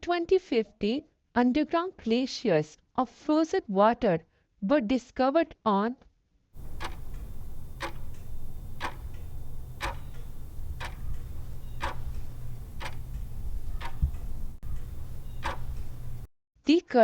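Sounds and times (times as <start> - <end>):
clock ticking: 6.6 - 16.3
low steady hum: 6.6 - 16.3.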